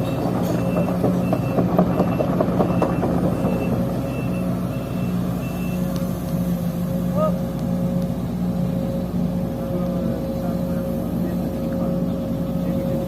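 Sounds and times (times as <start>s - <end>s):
metal clanks: 0.0s - 3.6s
excavator diesel engine running: 0.0s - 13.0s
travel alarm beeping: 0.5s - 6.0s.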